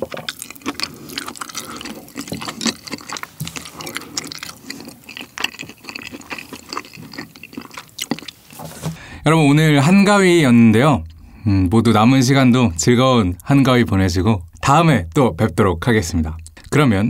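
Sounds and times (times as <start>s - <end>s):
chewing with sticky mouth clicks: 0.0s - 8.4s.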